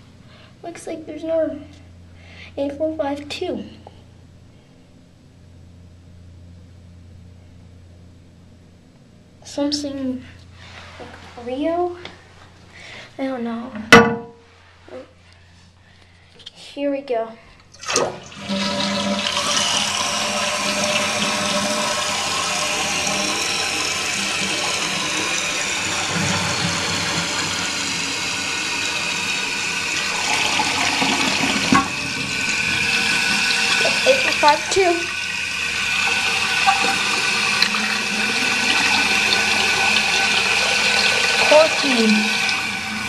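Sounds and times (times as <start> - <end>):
toilet flushing: 17.7 - 43.0.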